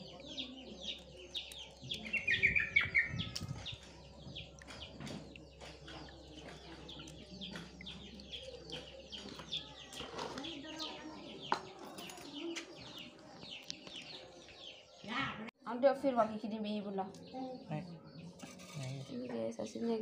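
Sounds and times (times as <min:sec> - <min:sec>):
small birds chirping: 0:00.0 - 0:15.5, 0:16.4 - 0:20.0.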